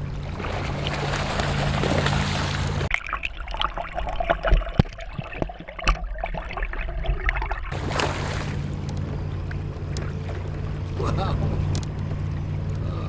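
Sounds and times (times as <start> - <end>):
steady hum: 0.0 - 2.9, 7.2 - 13.0
water gurgling underwater: 2.8 - 8.4.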